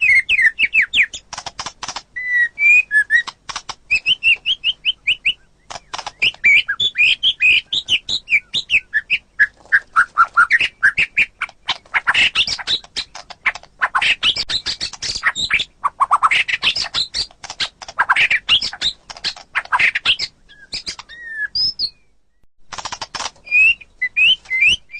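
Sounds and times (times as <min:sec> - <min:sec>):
songbird singing: 0:00.0 - 0:24.9.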